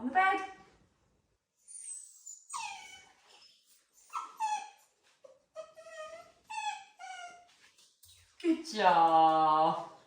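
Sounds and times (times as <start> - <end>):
dog whining: 1.7 - 7.5.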